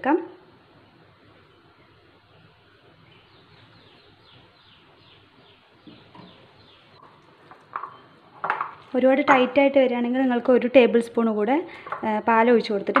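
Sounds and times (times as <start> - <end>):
bird chirping: 3.0 - 7.2, 7.8 - 8.3.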